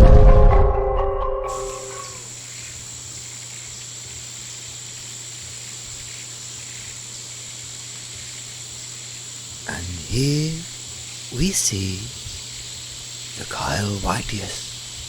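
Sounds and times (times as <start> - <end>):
insect-like drone: 1.5 - 15.0
low steady hum: 9.6 - 12.5.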